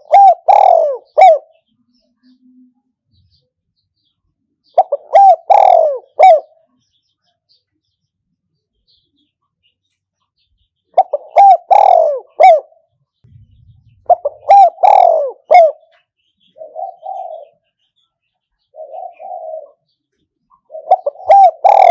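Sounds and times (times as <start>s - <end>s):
dove cooing: 0.0s - 1.6s, 4.7s - 6.7s, 10.9s - 17.7s, 18.6s - 20.0s, 20.6s - 21.9s.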